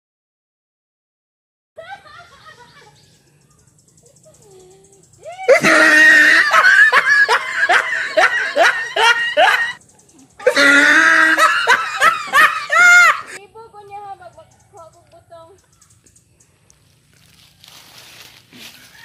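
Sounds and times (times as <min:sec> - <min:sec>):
loud close laughter: 0:01.8 - 0:03.1, 0:05.5 - 0:09.8, 0:10.4 - 0:13.4.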